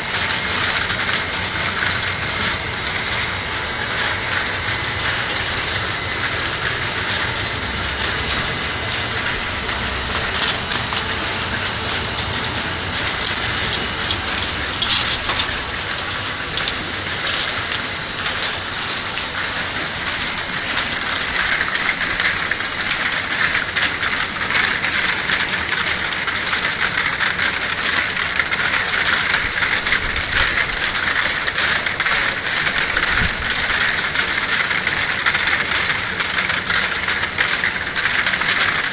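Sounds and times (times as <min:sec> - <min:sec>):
glass vials clinking: 0:00.1 - 0:18.6.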